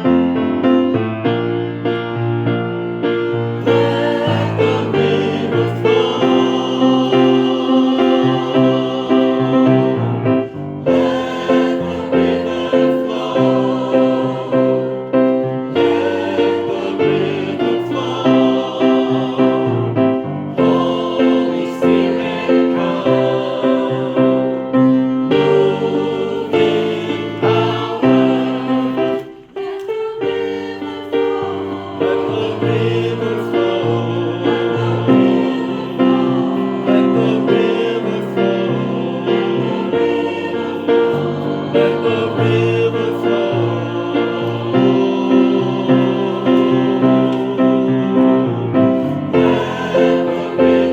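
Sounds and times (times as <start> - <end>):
choir singing: 0.0 - 0.8, 2.9 - 50.9
keyboard accompaniment: 0.0 - 50.9.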